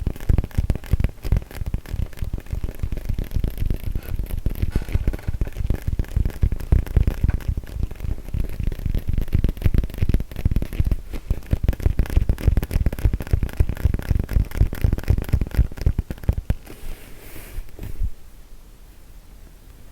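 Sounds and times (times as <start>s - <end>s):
fingers tapping on a yoga mat: 0.0s - 16.7s
soft rustle: 16.3s - 18.4s.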